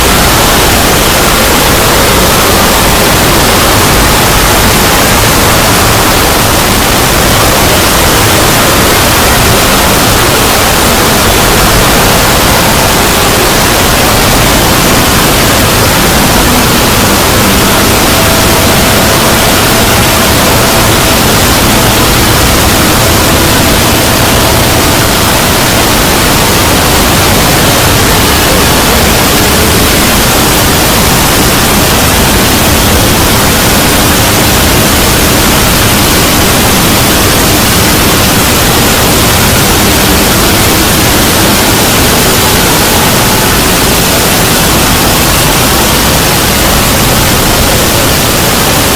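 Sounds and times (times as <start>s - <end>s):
static hiss: 0.0s - 48.9s.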